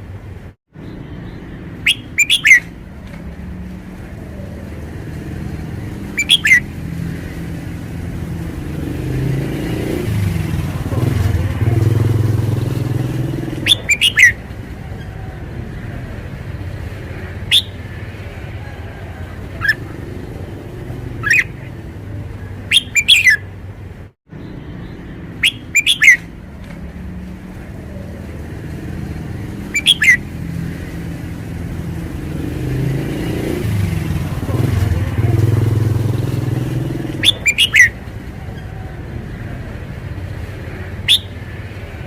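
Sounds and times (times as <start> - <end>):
bird singing sharp phrases: 0.7 - 2.8, 6.0 - 7.0, 13.4 - 15.2, 17.2 - 18.0, 21.1 - 21.8, 22.6 - 23.5, 24.3 - 26.3, 29.4 - 31.0, 37.1 - 38.7, 41.0 - 41.5.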